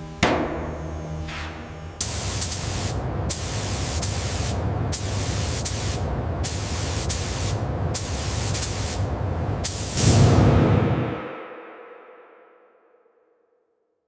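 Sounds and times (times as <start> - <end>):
steady low hum: 0.0 - 11.2
spray gun hissing: 1.6 - 10.1.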